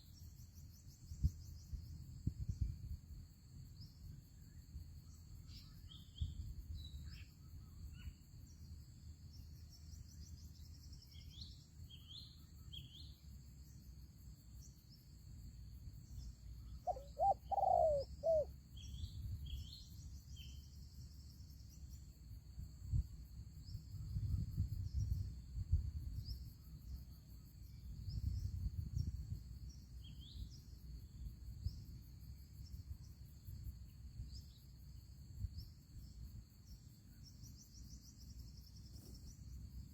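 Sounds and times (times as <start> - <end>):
insect drone: 0.0 - 39.9
small birds chirping: 5.4 - 13.3, 16.0 - 21.9
dove cooing: 16.9 - 18.5.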